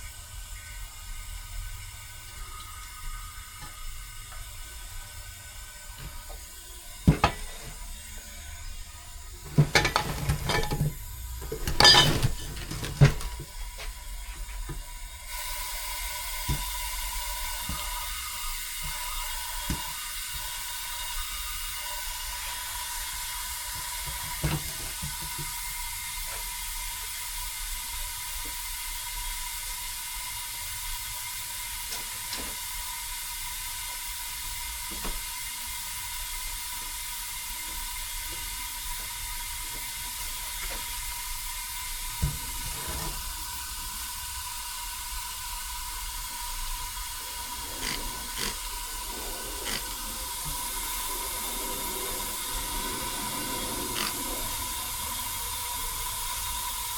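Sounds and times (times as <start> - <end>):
steady hiss: 0.0 - 56.9.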